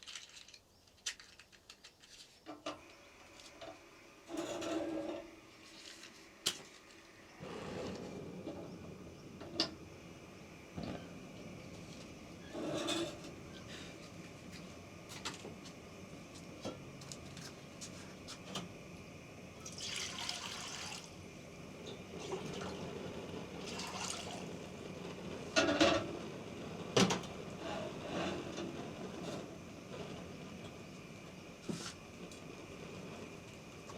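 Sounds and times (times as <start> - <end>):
water pouring and splashing: 19.6 - 21.2, 23.6 - 24.5.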